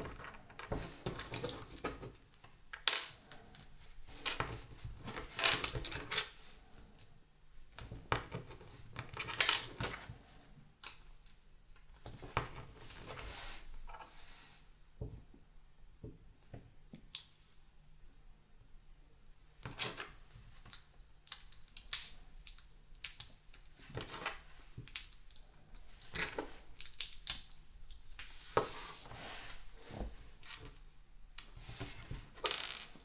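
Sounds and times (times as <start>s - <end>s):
plastic bricks clicking together: 20.7s - 23.7s, 26.8s - 27.6s.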